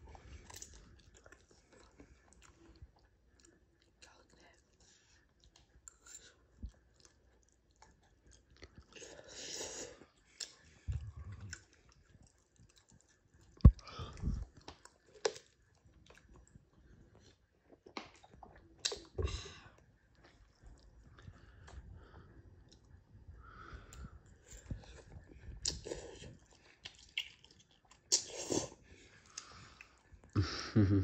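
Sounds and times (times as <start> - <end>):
person chewing noodles: 0.1 - 30.4.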